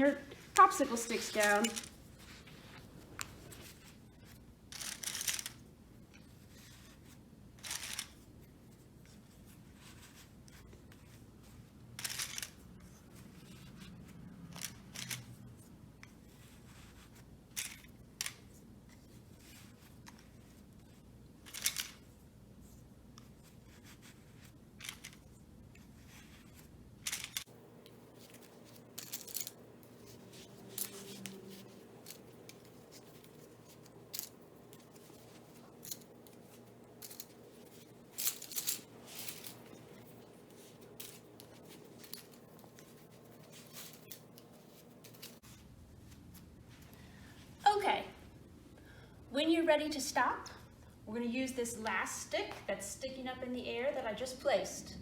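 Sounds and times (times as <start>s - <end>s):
wooden sticks clicking and scraping: 0.0s - 3.9s, 26.1s - 45.6s.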